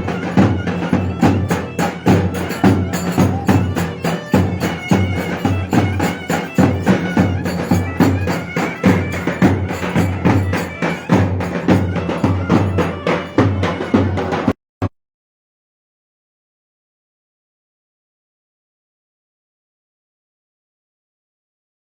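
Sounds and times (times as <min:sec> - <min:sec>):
reedy wind instrument melody: 0:00.0 - 0:14.5
drum beats: 0:00.0 - 0:14.9.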